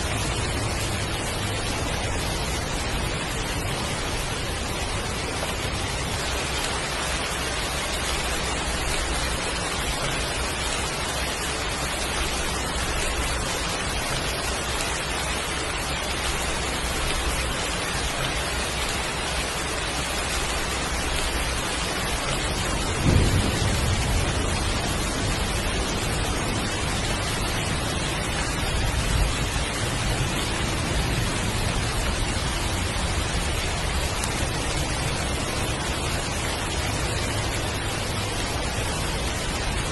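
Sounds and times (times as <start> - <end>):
heavy rain falling: 0.0 - 39.9
thunder crack and rumble: 18.1 - 37.8.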